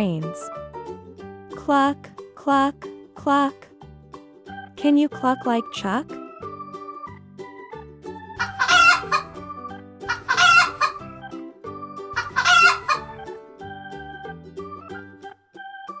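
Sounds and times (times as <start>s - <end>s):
soft keyboard background music: 0.0s - 16.0s
chicken calling: 8.4s - 9.4s, 10.1s - 11.2s, 12.1s - 13.2s.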